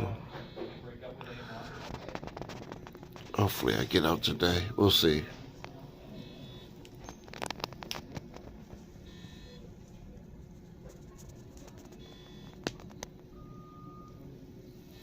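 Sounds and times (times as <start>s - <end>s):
medical alarm beeping: 0.0s - 1.0s, 3.3s - 5.4s, 6.0s - 7.8s, 8.8s - 9.8s, 11.7s - 15.0s
faint steady hum: 0.0s - 15.0s.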